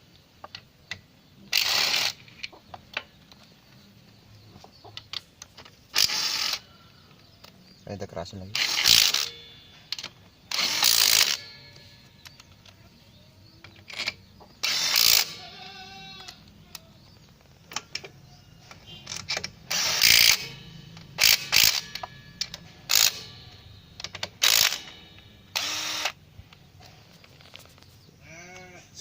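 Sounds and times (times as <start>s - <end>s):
impact driver hammering: 19.2s - 26.2s.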